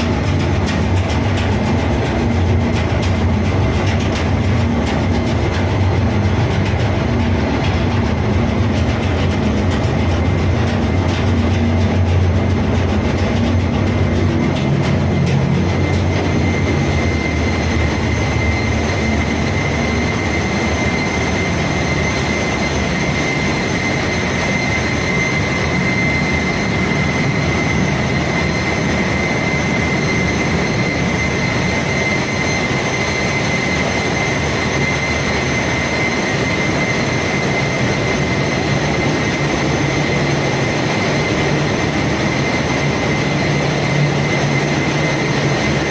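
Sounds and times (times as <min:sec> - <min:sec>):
engine-room machinery roar: 0:00.0 - 0:45.9
high-pitched whine: 0:00.0 - 0:45.9.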